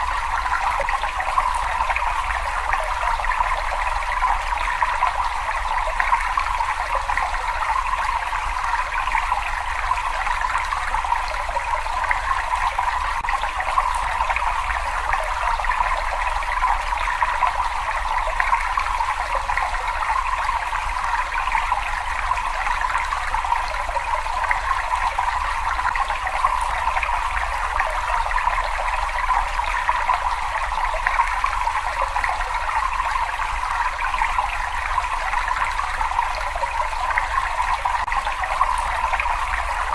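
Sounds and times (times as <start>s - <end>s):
cave water trickling: 0.0s - 39.9s.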